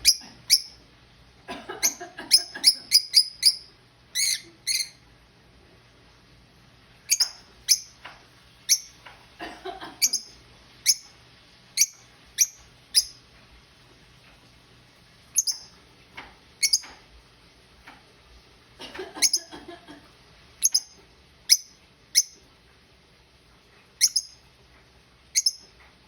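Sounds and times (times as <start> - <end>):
bird chirping: 0.0 - 0.8, 1.8 - 5.0, 7.1 - 9.1, 10.0 - 11.2, 11.8 - 13.2, 15.3 - 15.8, 16.6 - 17.0, 20.6 - 22.4, 24.0 - 24.4, 25.3 - 25.8.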